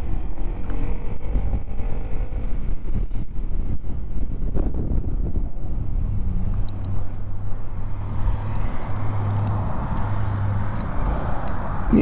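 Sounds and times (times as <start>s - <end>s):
motorcycle engine humming: 0.0s - 12.0s
wind and road noise: 0.0s - 12.0s.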